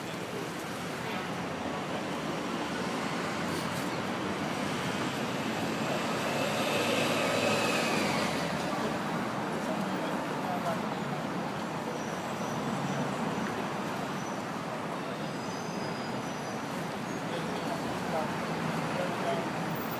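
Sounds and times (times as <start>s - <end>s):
city street traffic: 0.0s - 19.9s
vehicle passing: 4.5s - 9.0s.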